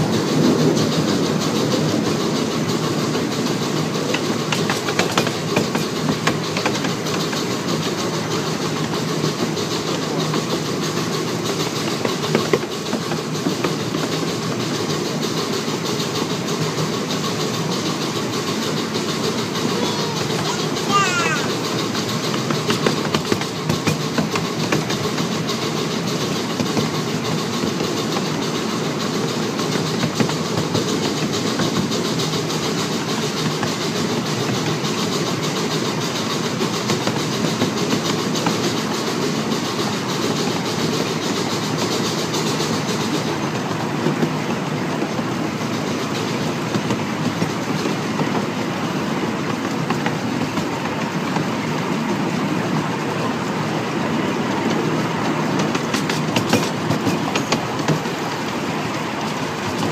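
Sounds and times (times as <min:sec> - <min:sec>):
clacks at rail joints: 0:00.0 - 0:59.9
high steam hiss: 0:00.0 - 0:59.9
rumble of wheels on rail: 0:00.0 - 0:59.9.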